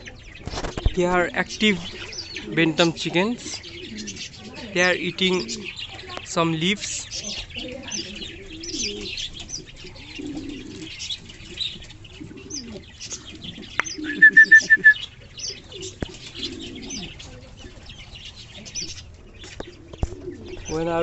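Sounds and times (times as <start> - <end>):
low cooing bird calls: 0.0 - 6.3, 7.0 - 21.0
high bird chirping: 7.0 - 19.1.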